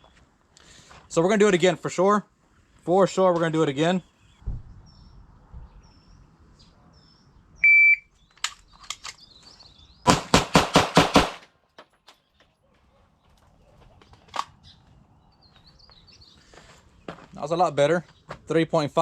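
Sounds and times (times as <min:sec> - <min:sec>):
shot timer beep: 0:07.6 - 0:08.0
pistol shots: 0:10.1 - 0:11.5.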